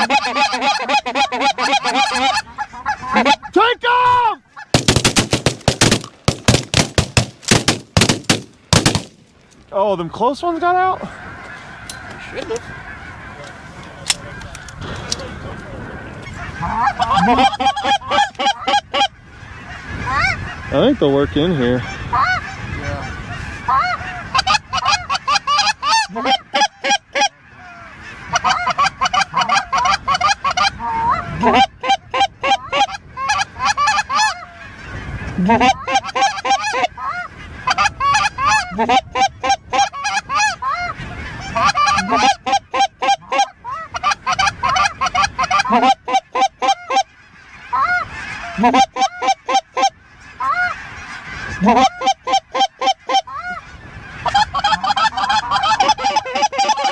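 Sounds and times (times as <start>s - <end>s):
goose calls chatter: 0.0s - 3.6s, 16.2s - 34.5s, 35.3s - 56.9s
geese honking: 0.0s - 9.1s, 9.8s - 56.9s.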